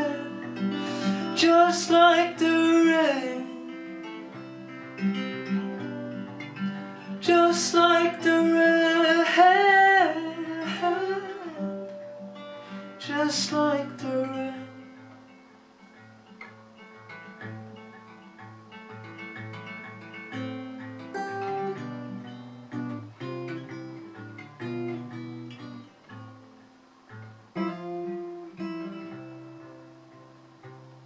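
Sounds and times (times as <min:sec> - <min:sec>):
acoustic guitar playing: 0:00.0 - 0:31.0.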